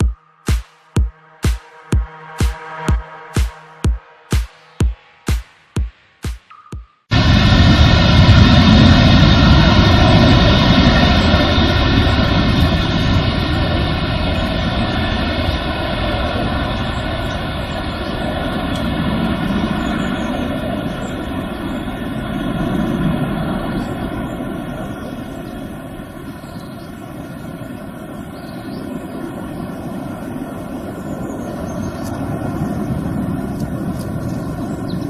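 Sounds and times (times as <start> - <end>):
jet engines rumbling and whining: 7.1 - 35.0.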